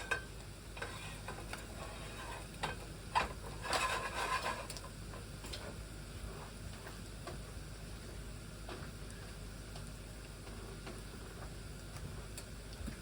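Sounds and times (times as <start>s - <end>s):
eggs sizzling in a frying pan: 0.0s - 13.0s
spatula scraping a pan: 0.8s - 4.8s.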